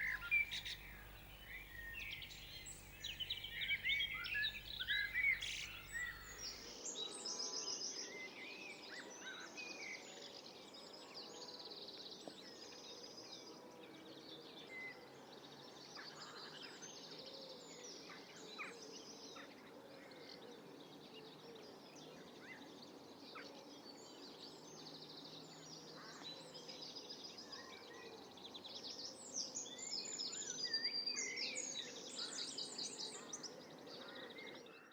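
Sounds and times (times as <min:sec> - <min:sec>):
outdoor ambience: 0:00.0 - 0:07.5
birds chirping and trilling: 0:00.0 - 0:08.1.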